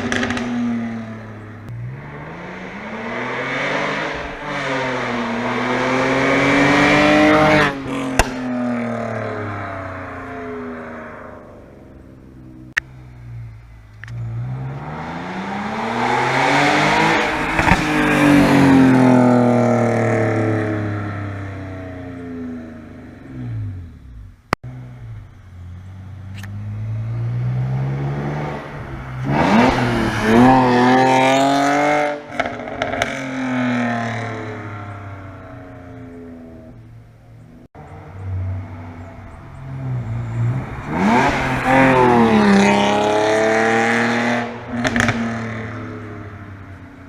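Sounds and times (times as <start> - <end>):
exhaust pops: 0.0 - 0.7, 44.7 - 45.7
car exhaust accelerating: 0.0 - 47.0
sharp crack: 7.9 - 8.8.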